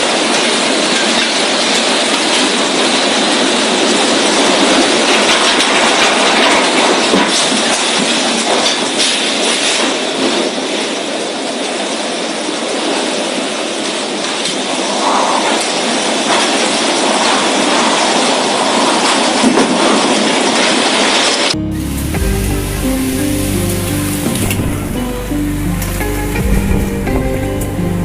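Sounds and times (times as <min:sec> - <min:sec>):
strong wind blowing: 0:13.1 - 0:28.0.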